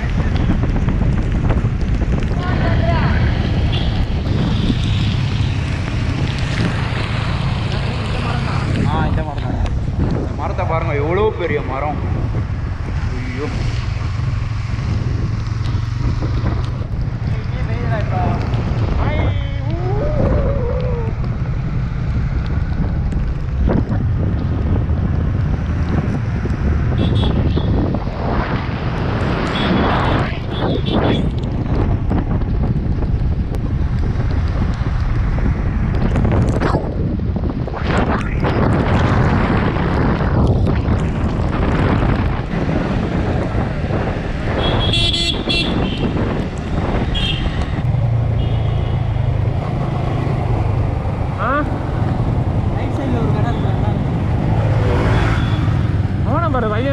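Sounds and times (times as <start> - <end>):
motorcycle riding: 0.0 - 56.9
wind buffeting microphone: 0.0 - 56.9
vehicle horn tooting: 44.6 - 46.0.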